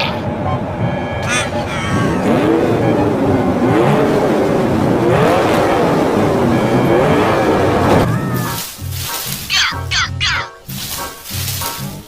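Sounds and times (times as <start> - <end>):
cartoon truck engine revving: 0.0 - 8.6.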